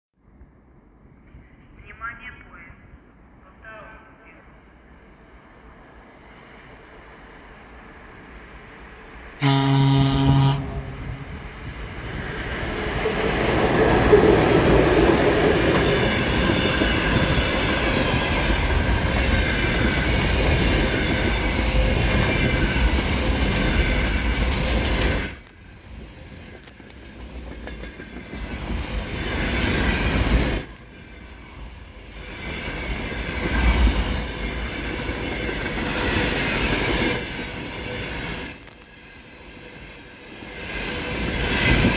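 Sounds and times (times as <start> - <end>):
locomotive horn blast: 9.4 - 11.4
train wheels clattering on rails: 11.9 - 41.9.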